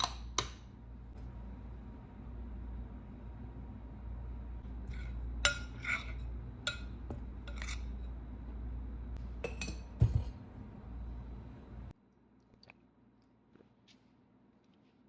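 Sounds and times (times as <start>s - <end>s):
dishes and utensils clinking: 0.0s - 0.6s, 4.8s - 8.1s, 9.2s - 10.4s
steady low hum: 0.0s - 12.0s.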